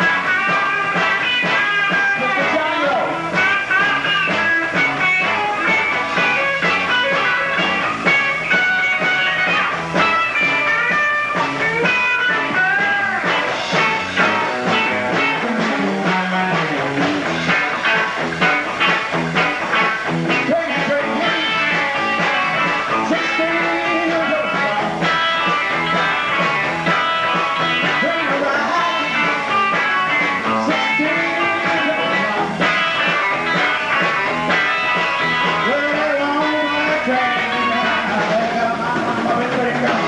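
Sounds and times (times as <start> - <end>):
bending guitar notes: 0.0 - 40.0
rock and roll band playing: 0.0 - 40.0.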